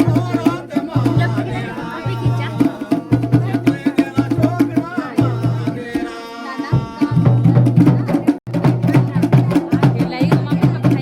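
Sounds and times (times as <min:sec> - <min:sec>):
dhol drumming: 0:00.0 - 0:11.0.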